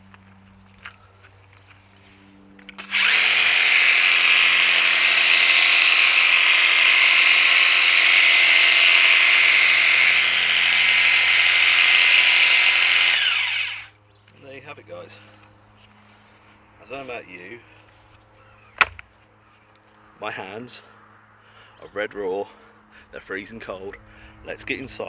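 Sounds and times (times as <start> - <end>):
pressure washer running: 2.8 - 13.9.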